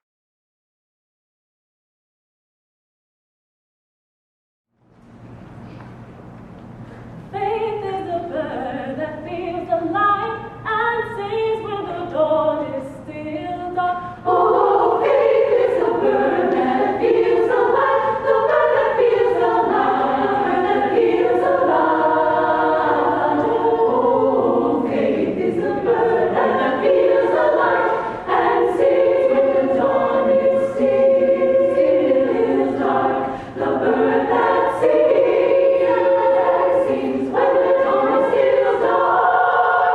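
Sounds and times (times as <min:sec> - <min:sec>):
choir singing: 0:11.5 - 0:39.9.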